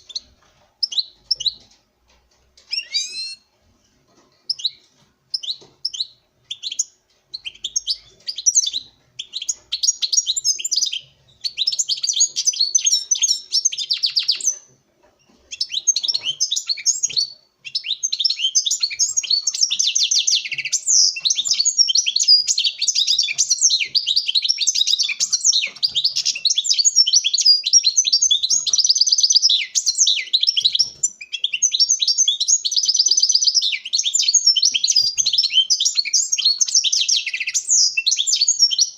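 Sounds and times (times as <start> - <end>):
goldfinch twittering song: 2.7 - 3.4, 15.5 - 38.9.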